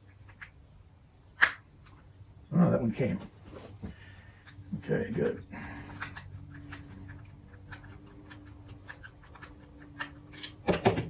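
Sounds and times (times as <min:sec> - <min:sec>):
small metal parts clicking: 0:05.9 - 0:10.7.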